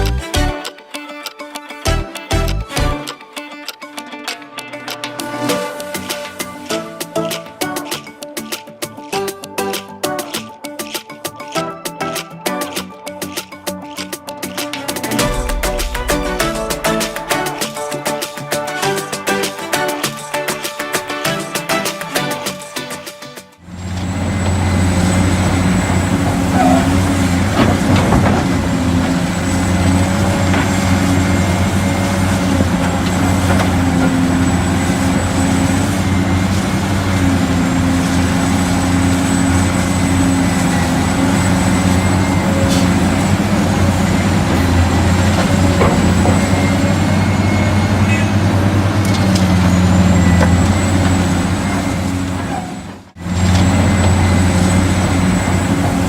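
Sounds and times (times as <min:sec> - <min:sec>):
toy vehicle motor hum and whine: 0:23.8 - 0:56.0.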